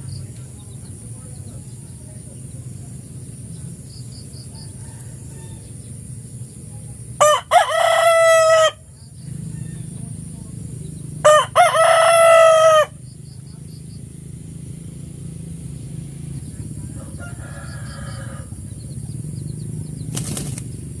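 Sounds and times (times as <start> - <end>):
rooster crowing: 4.6 - 5.9, 7.2 - 8.9, 11.2 - 13.0, 16.9 - 18.7.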